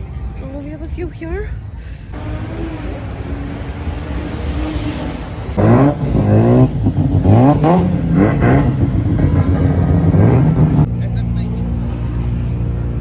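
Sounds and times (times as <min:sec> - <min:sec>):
racing car engine accelerating: 0:02.2 - 0:10.9.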